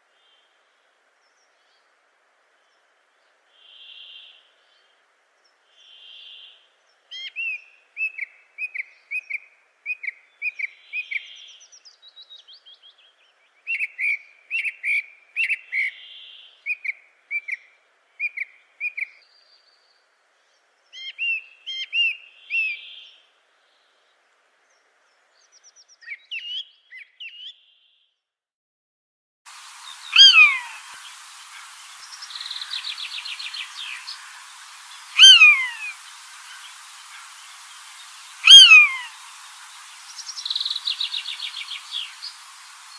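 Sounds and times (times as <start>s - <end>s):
faint steady hiss: 0.0s - 28.0s, 29.5s - 42.9s
birds chirping and whistling: 29.9s - 36.9s, 37.8s - 39.3s.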